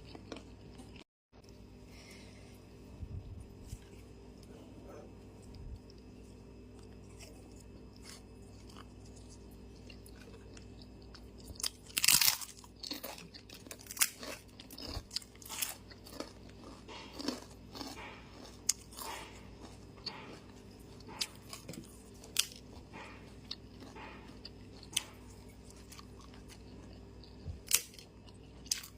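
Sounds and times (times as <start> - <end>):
crunchy chewing: 0.0 - 1.0, 3.4 - 28.9
crunchy bite: 6.8 - 28.9.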